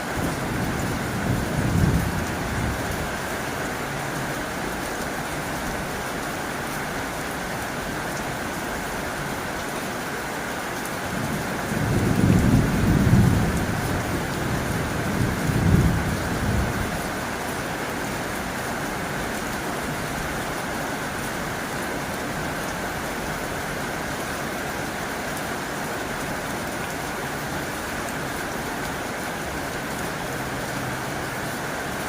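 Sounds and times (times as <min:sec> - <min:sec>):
heavy rain on a tin roof: 0:00.0 - 0:32.0
low rumble of thunder: 0:00.2 - 0:03.1, 0:11.1 - 0:17.2.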